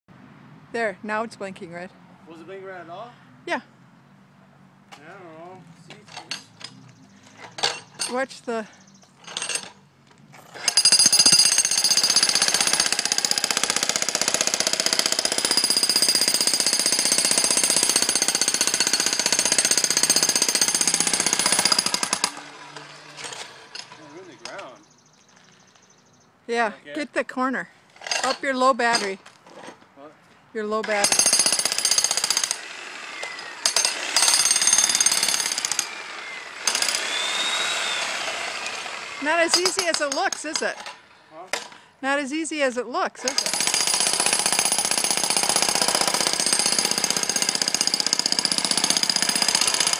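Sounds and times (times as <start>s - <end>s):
jackhammer hammering: 10.5s - 24.6s, 30.8s - 40.8s, 43.3s - 49.9s.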